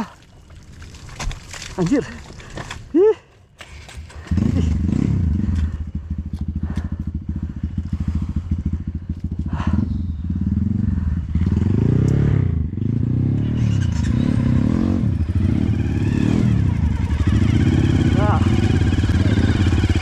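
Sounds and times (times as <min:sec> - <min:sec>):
motorbike engine revving: 0:03.6 - 0:20.0.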